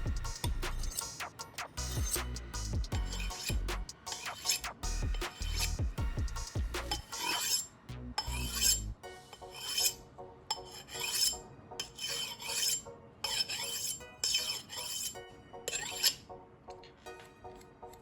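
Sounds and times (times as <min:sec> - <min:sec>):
background music with bass beat: 0:00.0 - 0:07.2, 0:07.9 - 0:09.0
knife scraping on metal: 0:00.7 - 0:05.8, 0:06.8 - 0:16.3.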